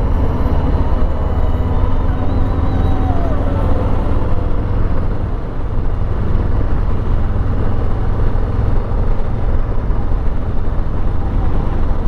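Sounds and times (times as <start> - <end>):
motorcycle engine rumbling: 0.0 - 8.2.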